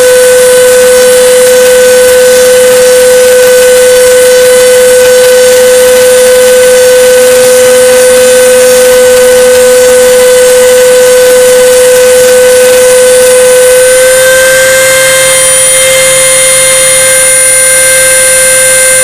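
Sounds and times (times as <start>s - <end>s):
router spindle high whine: 0.0s - 19.0s
bit cutting plywood hiss: 13.7s - 19.0s.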